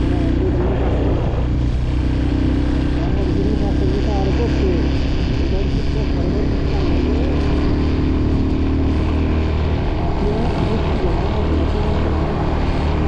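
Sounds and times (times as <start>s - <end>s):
motorcycle engine drone: 0.0s - 13.0s
wind on microphone: 0.0s - 13.0s.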